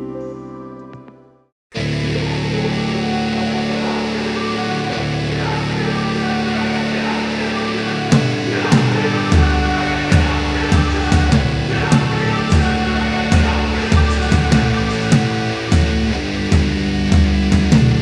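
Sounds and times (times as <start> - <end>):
guitar chords: 0.0 - 18.0
bass: 1.8 - 18.0
drum beat: 8.1 - 18.0.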